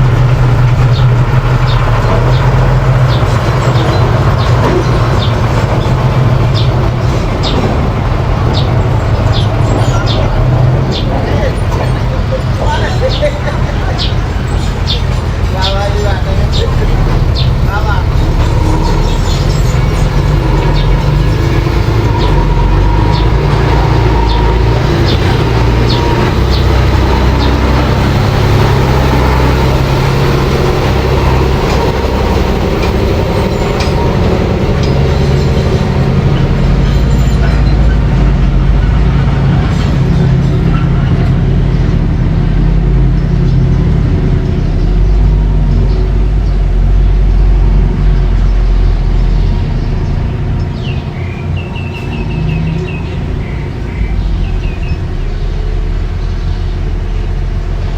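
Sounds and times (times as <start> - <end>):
bulldozer engine rumbling: 0.0 - 57.9.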